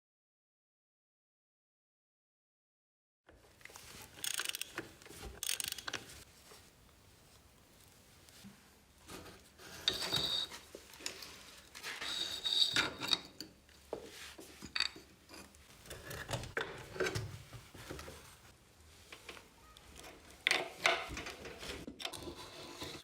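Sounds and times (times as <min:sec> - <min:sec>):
scraping and rubbing on metal: 0:09.1 - 0:13.5, 0:20.1 - 0:23.0.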